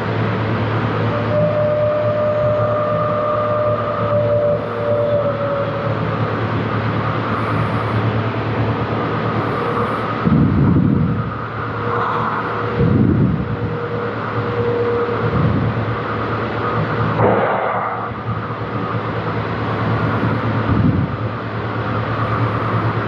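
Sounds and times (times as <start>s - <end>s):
electric truck hum: 0.0s - 23.0s
faint whine: 0.0s - 23.0s
low surges: 6.8s - 23.0s.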